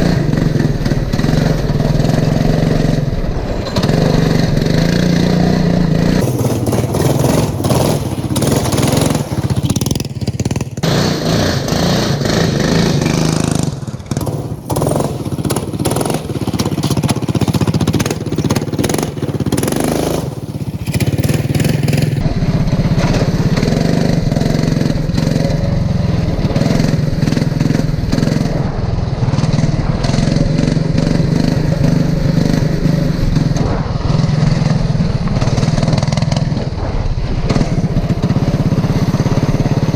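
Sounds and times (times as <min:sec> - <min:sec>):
lawn mower engine running hard: 0:00.0 - 0:39.9.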